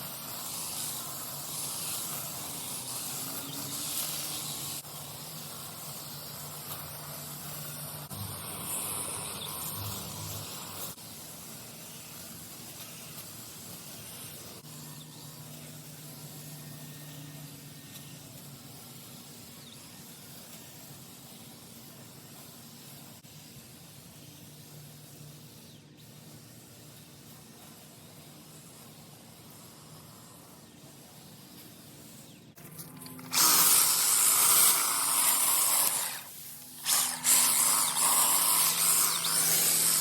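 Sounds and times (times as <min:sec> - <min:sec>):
hiss: 0:00.0 - 0:40.0
hedge trimmer humming: 0:32.6 - 0:40.0.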